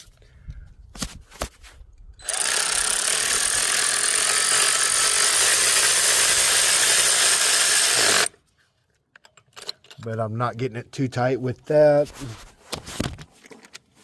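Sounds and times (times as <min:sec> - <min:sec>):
power ratchet spinning: 0:02.2 - 0:08.4.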